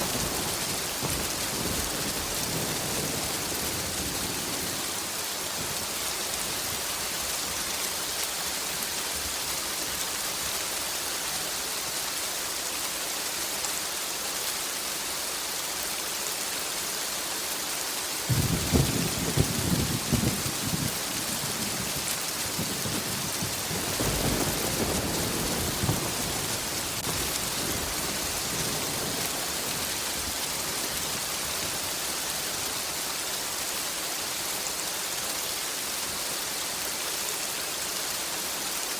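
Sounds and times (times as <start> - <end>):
rolling thunder rumble: 0.0 - 5.8, 18.3 - 32.4
crackling thunderclap: 0.0 - 6.9, 18.3 - 32.7
heavy rain hissing: 0.0 - 38.9.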